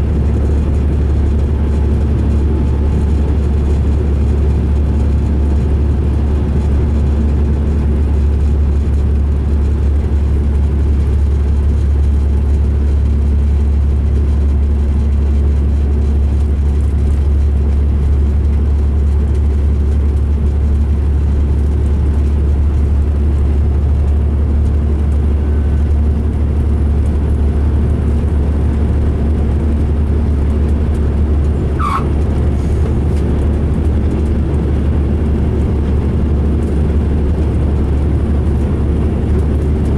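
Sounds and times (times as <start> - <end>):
coach diesel engine drone: 0.0 - 39.9
high squeak: 31.8 - 32.2.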